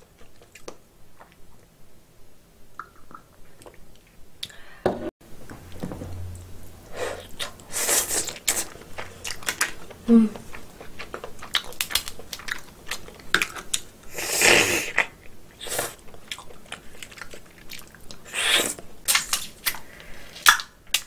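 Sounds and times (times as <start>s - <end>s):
noisy chewing: 7.2s - 13.9s, 14.8s - 20.6s.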